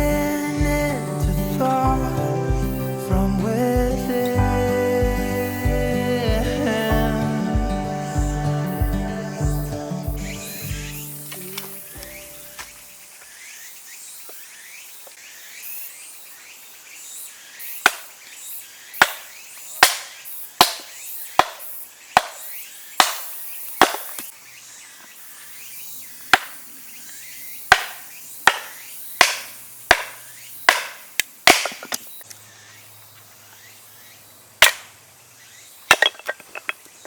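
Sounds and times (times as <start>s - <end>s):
axe chopping firewood: 17.8s - 18.1s, 19.0s - 24.3s, 26.3s - 26.6s, 27.7s - 32.0s, 34.6s - 34.9s, 35.9s - 36.8s.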